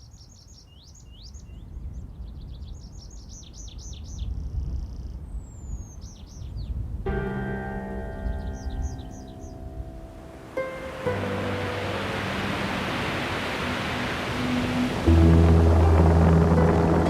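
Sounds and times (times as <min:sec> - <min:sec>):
songbird singing: 0:00.0 - 0:17.0
soft music with held notes: 0:07.1 - 0:17.0
low steady rumble: 0:11.6 - 0:17.0.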